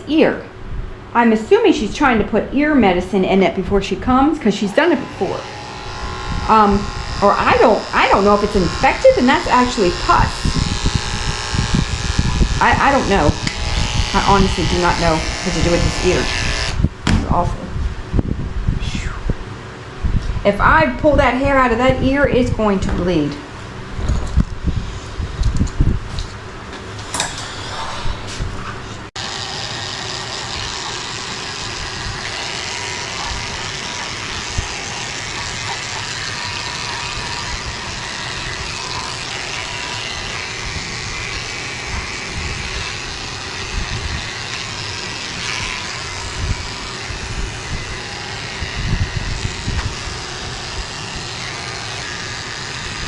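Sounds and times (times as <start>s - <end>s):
small electric motor running: 4.6s - 16.8s, 29.2s - 53.0s.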